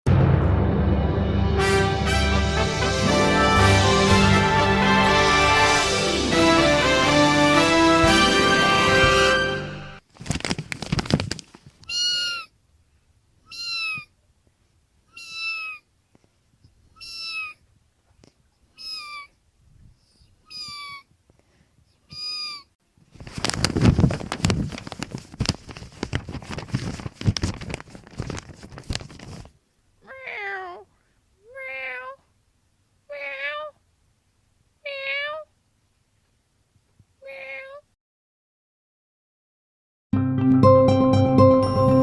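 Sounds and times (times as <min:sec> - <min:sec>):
rustling: 0:10.0 - 0:12.4, 0:23.0 - 0:29.6
kitten meowing: 0:11.8 - 0:12.5, 0:13.5 - 0:14.1, 0:15.1 - 0:15.8, 0:17.0 - 0:17.6, 0:18.8 - 0:19.3, 0:20.5 - 0:21.0, 0:22.1 - 0:22.7, 0:30.0 - 0:30.8, 0:34.9 - 0:35.5.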